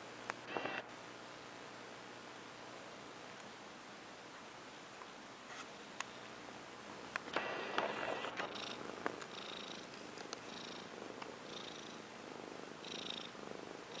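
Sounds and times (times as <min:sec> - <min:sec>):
kitten purring: 0:07.4 - 0:14.0.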